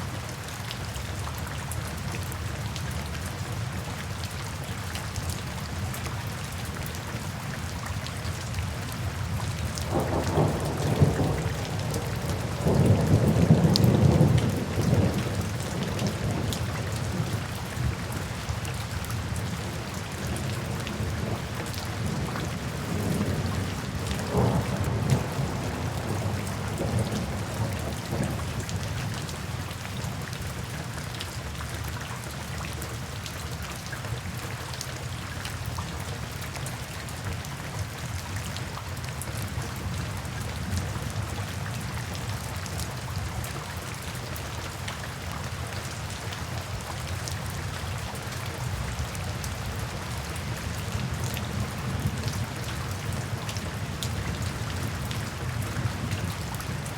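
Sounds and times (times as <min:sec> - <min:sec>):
steady rain: 0:00.0 - 0:56.9
low rumble of thunder: 0:09.3 - 0:18.0, 0:20.1 - 0:29.2.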